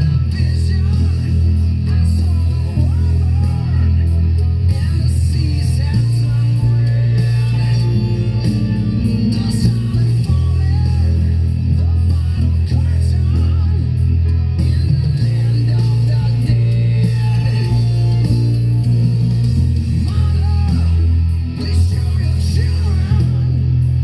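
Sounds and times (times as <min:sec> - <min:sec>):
electric bass low notes: 0:00.0 - 0:24.0
person singing: 0:00.0 - 0:24.0.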